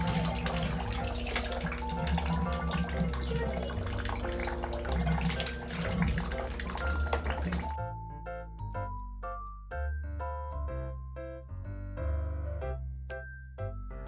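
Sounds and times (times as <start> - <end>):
water running from tap: 0.0 - 7.8
piano music: 0.0 - 14.0.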